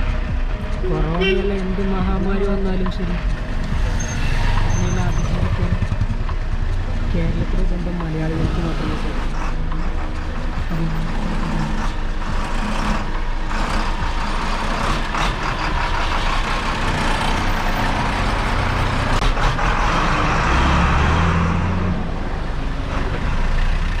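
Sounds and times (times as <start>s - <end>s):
road noise: 0.0s - 24.0s
vehicle engine hum: 0.0s - 24.0s.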